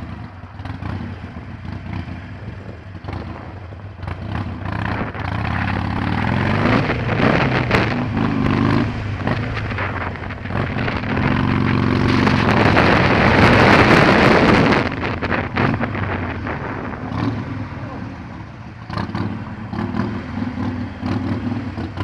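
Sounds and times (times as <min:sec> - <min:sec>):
motorcycle engine accelerating: 0:00.0 - 0:22.0
wind noise on microphone: 0:02.0 - 0:17.7.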